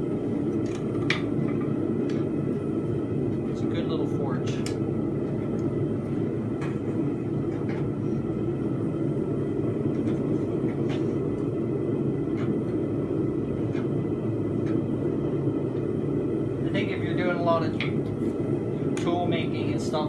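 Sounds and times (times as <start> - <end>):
gas burner roaring: 0.0 - 20.0.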